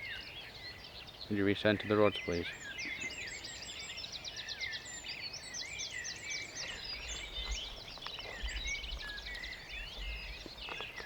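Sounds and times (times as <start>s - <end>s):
songbirds chirping and trilling: 0.0s - 11.0s.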